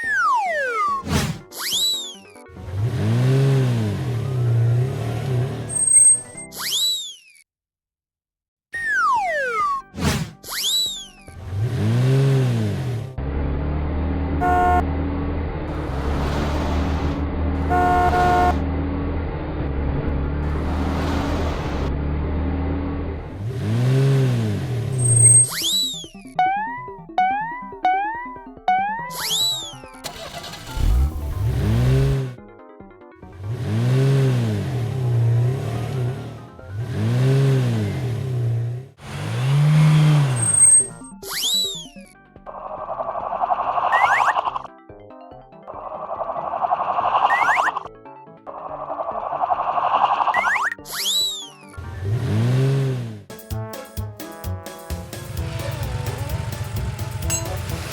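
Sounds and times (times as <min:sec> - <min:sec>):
cartoon rising and falling tone: 0:00.0 - 0:02.4, 0:05.7 - 0:07.4, 0:08.8 - 0:11.4, 0:25.0 - 0:32.3, 0:40.4 - 0:42.1, 0:43.3 - 0:44.7, 0:45.7 - 0:47.9, 0:48.6 - 0:51.8
vehicle engine hum effect: 0:02.5 - 0:06.4, 0:11.2 - 0:32.4, 0:33.2 - 0:41.8, 0:48.5 - 0:53.3, 0:54.9 - 0:57.9
truck horn tooting: 0:14.4 - 0:15.0, 0:17.6 - 0:18.7.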